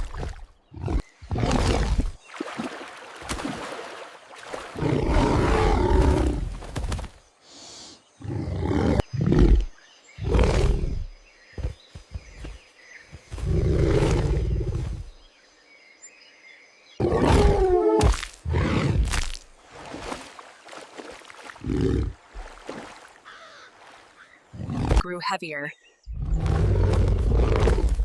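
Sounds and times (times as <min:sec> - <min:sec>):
big cat roaring and growling: 0:04.8 - 0:06.5, 0:08.2 - 0:11.1, 0:17.0 - 0:19.1, 0:26.1 - 0:28.0.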